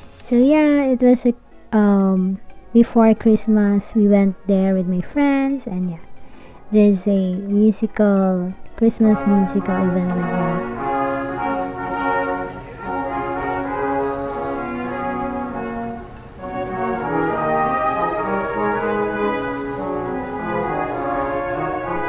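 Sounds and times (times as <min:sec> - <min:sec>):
brass band playing: 0:09.1 - 0:22.0.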